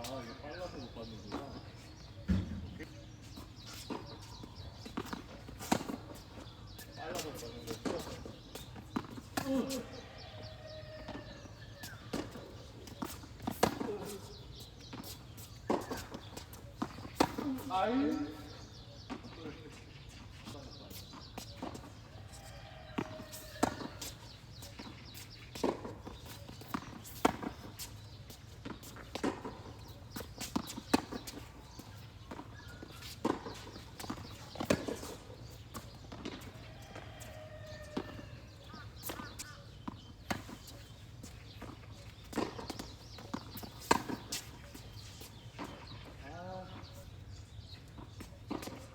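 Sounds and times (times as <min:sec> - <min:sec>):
rackets striking tennis ball: 0:28.6 - 0:46.0.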